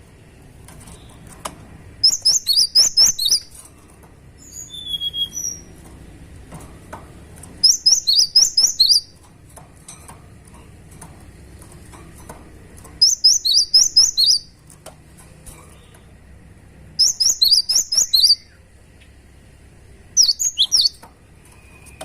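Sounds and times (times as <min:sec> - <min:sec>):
bird singing sharp high notes: 0:02.0 - 0:03.5, 0:04.4 - 0:05.7, 0:07.6 - 0:09.2, 0:13.0 - 0:14.5, 0:17.0 - 0:18.6, 0:20.2 - 0:22.0
thin whistled bird notes: 0:04.4 - 0:05.7, 0:13.0 - 0:14.5, 0:17.0 - 0:18.6, 0:20.2 - 0:22.0.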